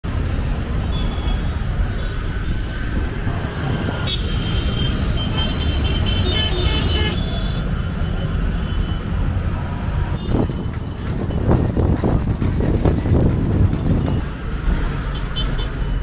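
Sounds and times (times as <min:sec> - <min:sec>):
road traffic rumble: 0:00.0 - 0:16.0
vehicle horn toots: 0:04.0 - 0:07.7.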